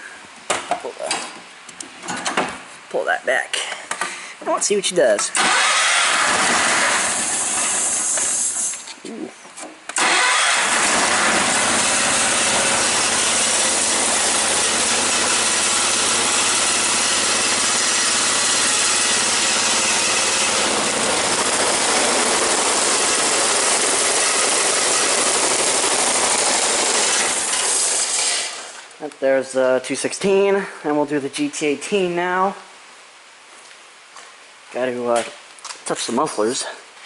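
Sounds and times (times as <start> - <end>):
garden tractor engine running: 5.4 - 8.6, 10.0 - 28.2.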